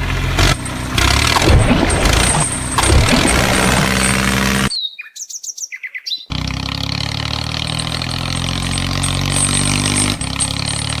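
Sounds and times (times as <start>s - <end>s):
engine running: 0.0s - 4.7s, 6.3s - 11.0s
bird chirps: 4.7s - 6.3s.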